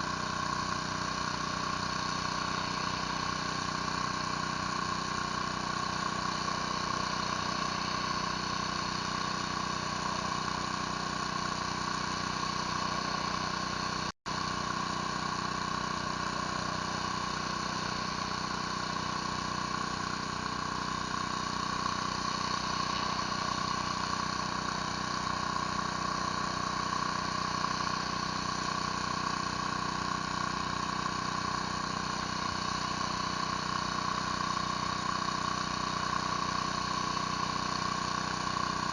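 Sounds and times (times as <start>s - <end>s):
pressure washer engine droning: 0.0s - 38.9s.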